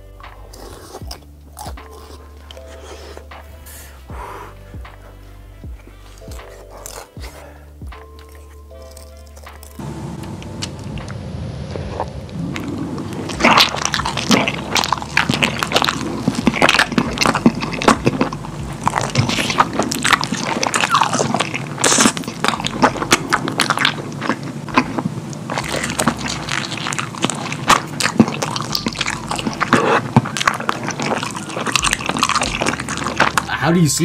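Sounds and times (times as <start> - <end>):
wet mouth sounds: 0.0 - 5.1, 5.7 - 9.8, 11.8 - 33.6
person chewing food: 0.0 - 33.6.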